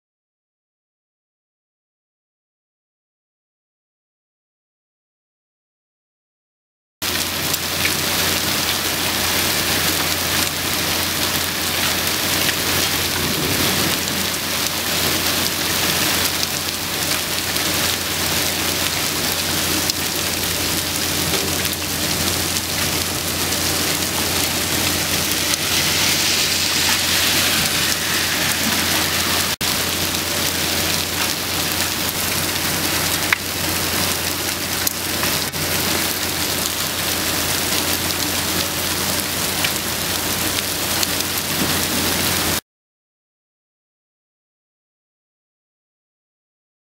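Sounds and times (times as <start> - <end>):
hail and rain pelting down: 7.0 - 42.6.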